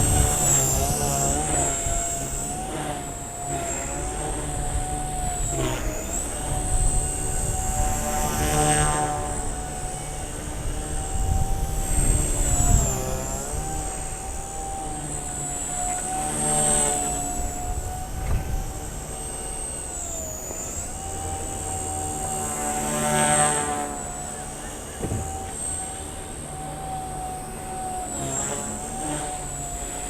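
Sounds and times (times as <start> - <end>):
wind rumbling on microphone: 0.0 - 16.3, 17.0 - 20.2
toy helicopter whining: 0.0 - 30.0.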